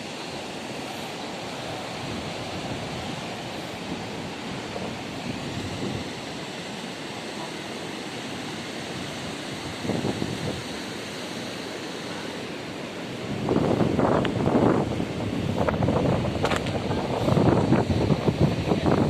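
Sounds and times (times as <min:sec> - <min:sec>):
sea water rushing: 0:00.0 - 0:19.0
wind: 0:00.0 - 0:19.0.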